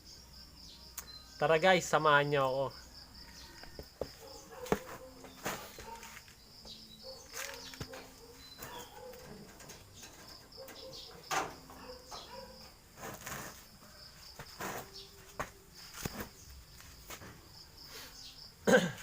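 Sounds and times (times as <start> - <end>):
crickets chirring: 0.0 - 19.0
pigeons cooing: 7.0 - 12.8.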